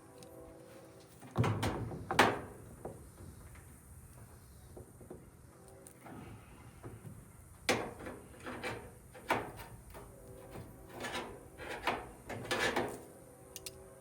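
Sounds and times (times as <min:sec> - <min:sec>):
metal parts clanking and scraping: 0:07.7 - 0:13.1.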